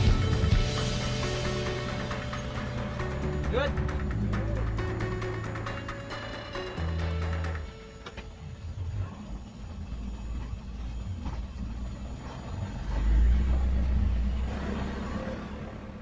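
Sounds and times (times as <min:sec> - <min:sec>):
diesel truck engine rumbling: 0:00.0 - 0:16.0.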